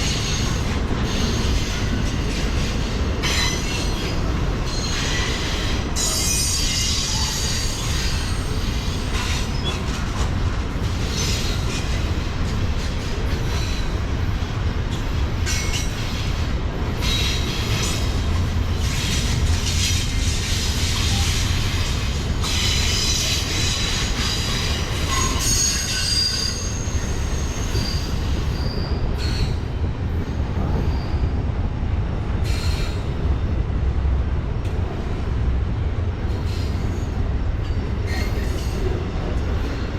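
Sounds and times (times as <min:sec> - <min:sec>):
train wheels squealing: 0:00.0 - 0:10.2, 0:11.0 - 0:12.1, 0:13.3 - 0:14.1, 0:14.9 - 0:16.2, 0:17.0 - 0:18.2, 0:18.8 - 0:29.7, 0:30.6 - 0:31.4, 0:32.4 - 0:33.1, 0:36.3 - 0:39.9
freight train rumbling past: 0:00.0 - 0:39.9.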